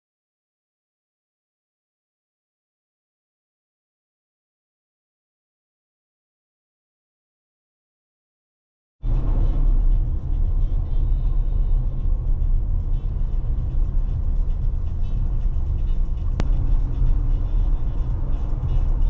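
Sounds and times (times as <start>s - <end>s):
car road noise: 9.0s - 19.0s
tyre and wind hiss: 9.1s - 19.0s.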